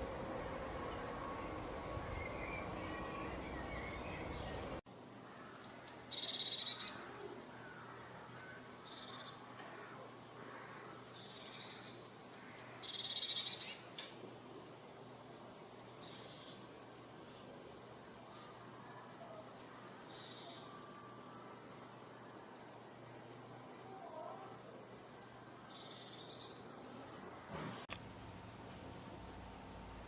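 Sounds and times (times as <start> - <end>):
small songbird singing: 0.9 - 7.2, 7.8 - 9.4, 10.4 - 14.0, 15.3 - 16.7, 18.9 - 21.1, 25.0 - 27.5.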